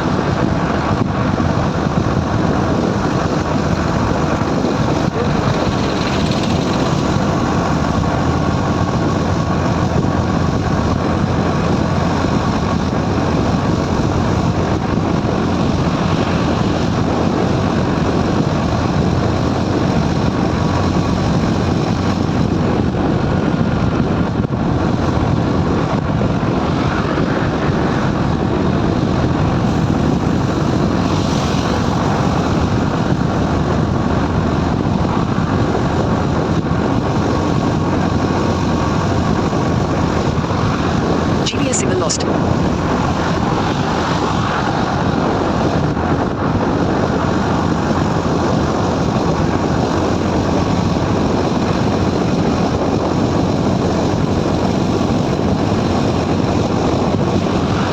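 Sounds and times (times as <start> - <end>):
wind and road noise: 0.0 - 57.9
motorcycle engine running: 1.2 - 22.5.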